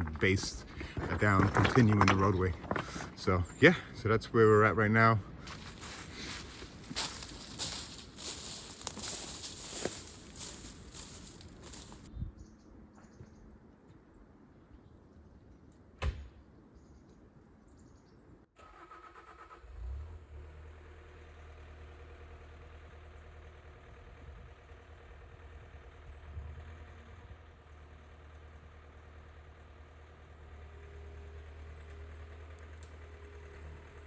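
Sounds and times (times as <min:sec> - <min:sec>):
skid steer engine idling: 0:05.3 - 0:12.1, 0:20.7 - 0:34.0.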